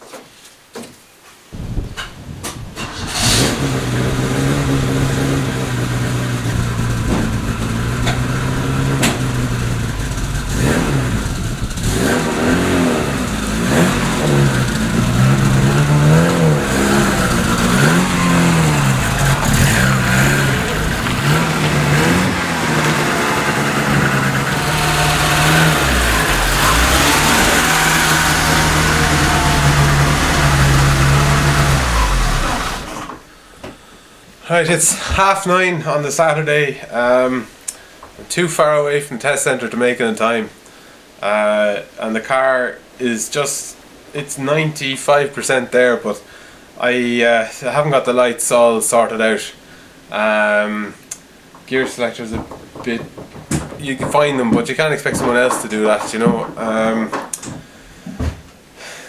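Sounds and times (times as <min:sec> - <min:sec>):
car engine revving: 0:01.6 - 0:33.3.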